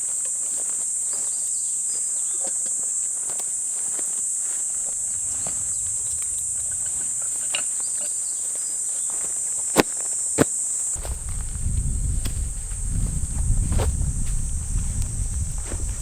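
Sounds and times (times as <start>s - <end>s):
insects chirping: 0.0s - 16.0s
low rumble: 5.0s - 7.5s, 11.0s - 16.0s.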